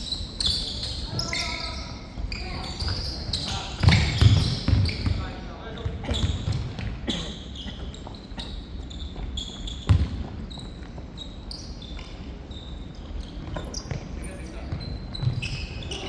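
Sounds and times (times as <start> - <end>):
shoes squeaking on court: 0.0 - 16.0
ball and feet thudding on floor: 9.9 - 10.4.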